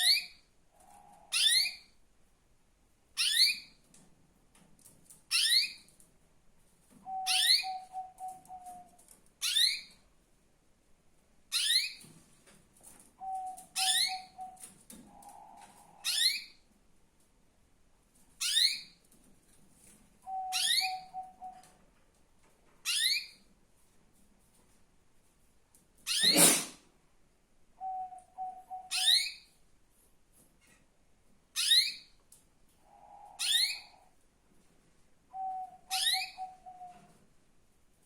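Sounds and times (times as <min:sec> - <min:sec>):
canary chirping: 0:00.0 - 0:02.0, 0:03.2 - 0:03.8, 0:05.3 - 0:05.9, 0:07.1 - 0:08.8, 0:09.4 - 0:10.0, 0:11.5 - 0:12.1, 0:13.2 - 0:14.7, 0:16.0 - 0:16.6, 0:18.4 - 0:19.0, 0:20.2 - 0:21.7, 0:22.8 - 0:23.5, 0:26.0 - 0:26.7, 0:27.8 - 0:29.6, 0:31.5 - 0:32.2, 0:32.9 - 0:34.2, 0:35.3 - 0:37.1.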